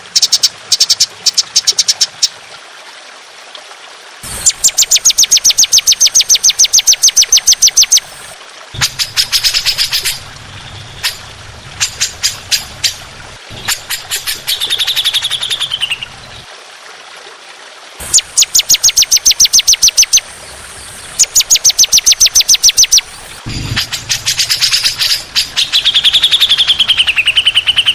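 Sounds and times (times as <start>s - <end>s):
songbird trilling: 4.6s - 8.2s, 8.8s - 13.0s, 13.6s - 16.4s, 18.1s - 27.9s.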